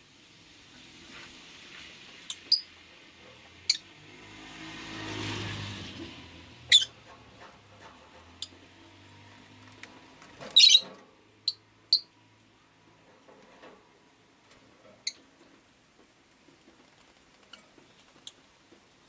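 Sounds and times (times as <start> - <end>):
lovebird chirping: 6.7 - 6.9, 10.6 - 10.8.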